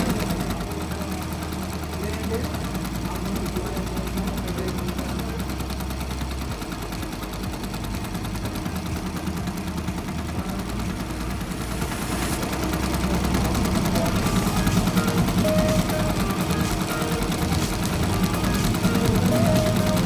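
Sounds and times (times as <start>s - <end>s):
embroidery machine stitching: 0.0s - 20.0s.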